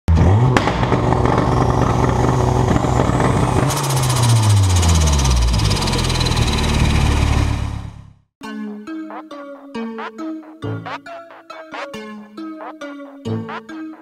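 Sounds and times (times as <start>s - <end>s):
car engine revving: 0.1s - 8.2s
fast high rattle: 3.7s - 7.8s.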